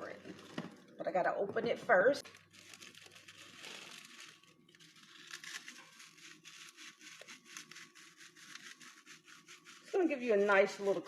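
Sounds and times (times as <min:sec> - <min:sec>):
cracker package crinkling: 0:02.2 - 0:09.6.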